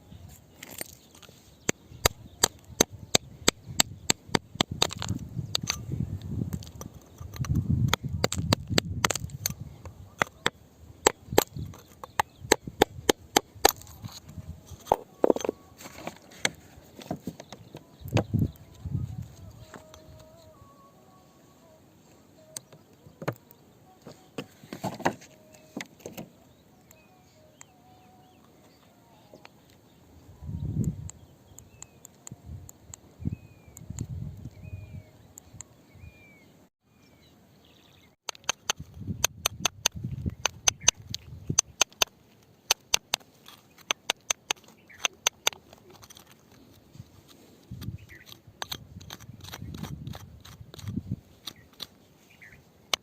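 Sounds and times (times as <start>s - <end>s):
tools clicking on rock: 0.6s - 5.9s, 6.5s - 16.6s, 38.2s - 53.0s.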